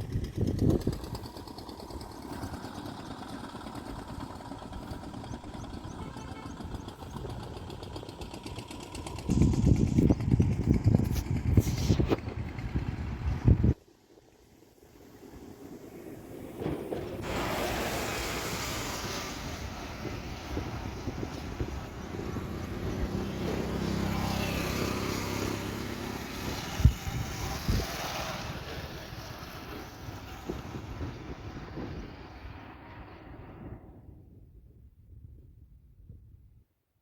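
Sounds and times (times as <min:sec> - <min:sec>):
river rushing: 0:17.2 - 0:21.0.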